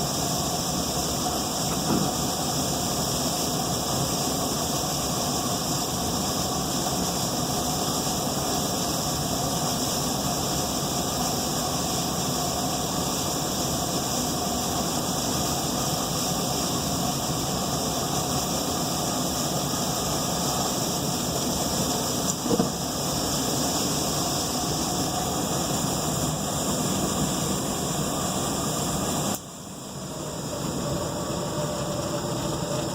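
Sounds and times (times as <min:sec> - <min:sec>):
furnace humming and whirring: 0:00.0 - 0:32.9
brief knock: 0:01.7 - 0:02.2, 0:22.4 - 0:22.8.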